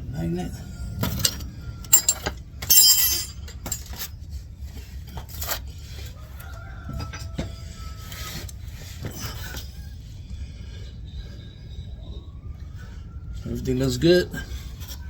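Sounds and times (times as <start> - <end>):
metal tools clinking and clattering: 1.0 - 4.2
metal jingling: 1.1 - 4.1.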